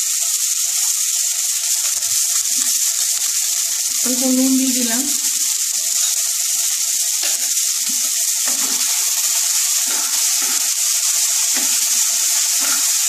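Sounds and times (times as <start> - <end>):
vegetables sizzling in oil: 0.0 - 13.0
wooden spatula scraping pan: 9.8 - 10.8, 11.5 - 13.0.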